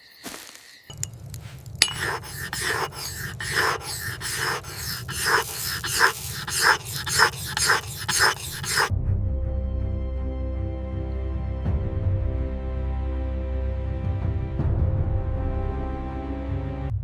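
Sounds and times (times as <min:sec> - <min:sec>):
rhythmic rasping scraping strokes: 0:00.9 - 0:08.9.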